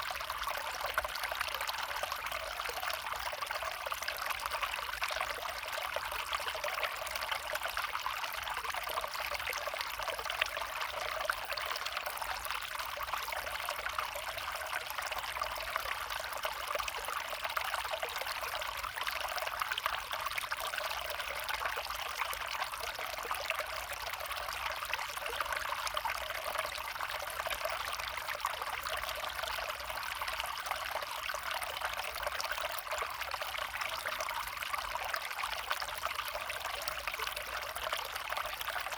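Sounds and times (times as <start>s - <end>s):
brook trickling: 0.0s - 38.9s.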